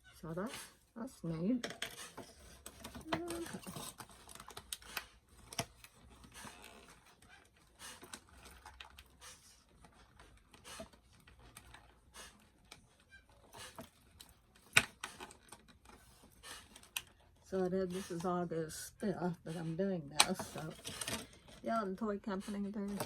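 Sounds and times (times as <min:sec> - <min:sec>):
plastic items clicking: 0:01.6 - 0:17.4, 0:20.1 - 0:21.8.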